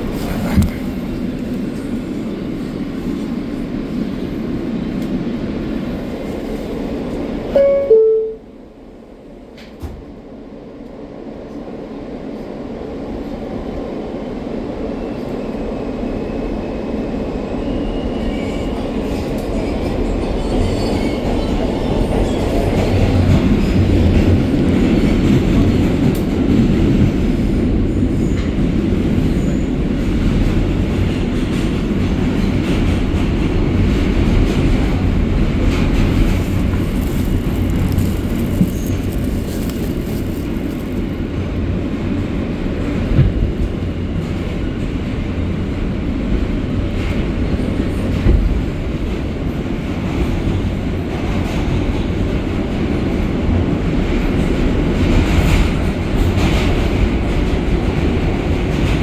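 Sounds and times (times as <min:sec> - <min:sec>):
subway car wheels rumbling on rail: 0:00.0 - 0:59.0.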